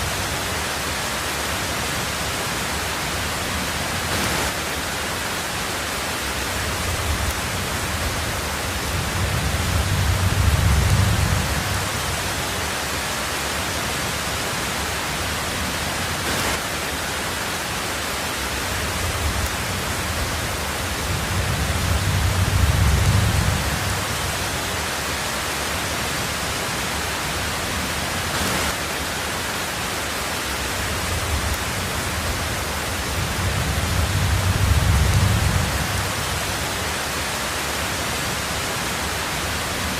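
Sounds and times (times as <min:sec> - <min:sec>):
heavy rain on a tin roof: 0:00.0 - 0:39.9
rolling thunder rumbles: 0:06.5 - 0:12.5, 0:18.8 - 0:24.8, 0:30.8 - 0:36.9.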